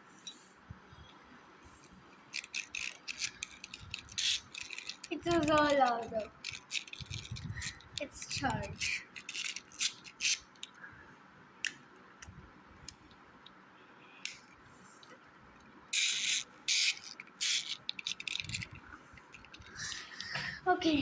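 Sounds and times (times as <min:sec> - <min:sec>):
plastic toy clicks and knocks: 0:02.3 - 0:10.4, 0:16.0 - 0:20.4.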